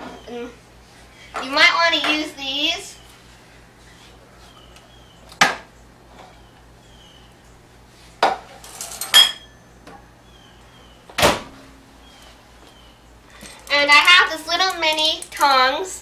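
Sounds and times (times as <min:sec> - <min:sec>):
dishes and utensils clinking: 0:08.3 - 0:09.5.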